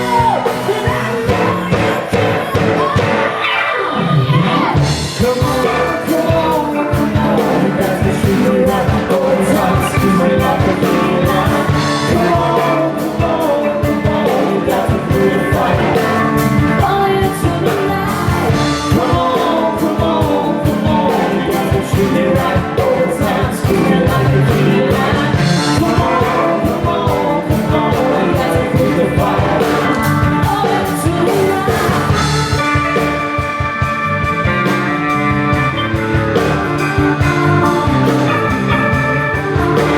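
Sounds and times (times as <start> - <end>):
electric guitar lead melody: 0.0 - 39.9
rock band playing: 0.0 - 39.9
drum beat: 4.0 - 39.9.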